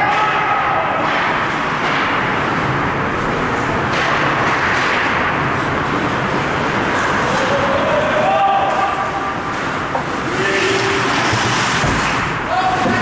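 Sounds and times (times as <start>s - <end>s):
arena crowd: 0.0s - 1.3s
skates on ice: 0.1s - 13.0s.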